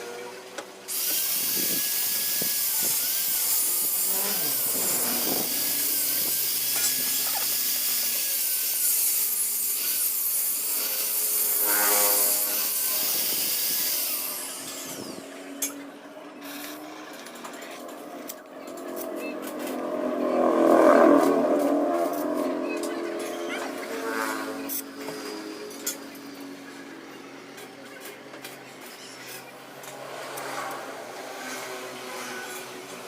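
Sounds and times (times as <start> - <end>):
power sander hissing: 0.9 - 15.4.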